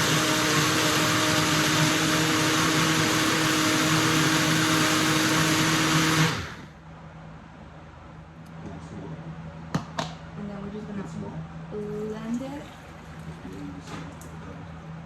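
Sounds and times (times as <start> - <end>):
electric blender running: 0.0 - 6.8.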